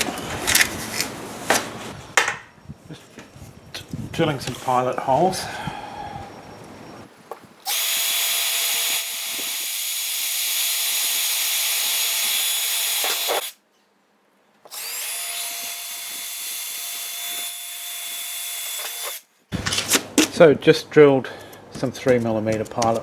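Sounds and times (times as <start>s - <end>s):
cordless drill boring holes: 7.7s - 13.6s, 14.7s - 19.3s.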